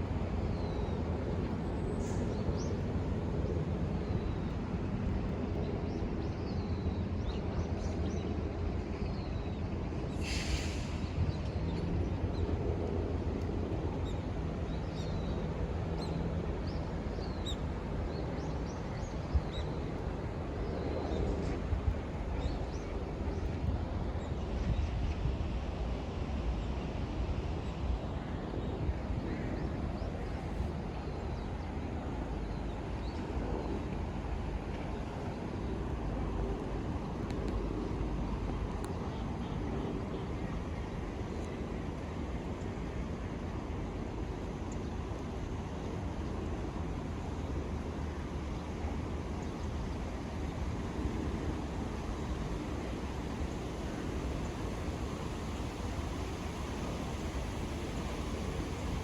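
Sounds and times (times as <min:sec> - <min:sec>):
distant traffic rumble: 0:27.4 - 0:59.0.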